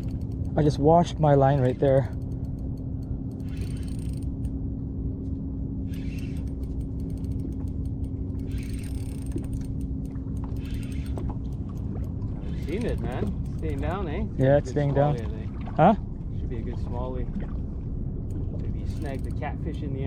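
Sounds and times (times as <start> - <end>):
fishing reel clicking: 0.0 - 4.6, 5.8 - 14.2, 18.3 - 20.0
boat hum and rumble: 0.0 - 20.0.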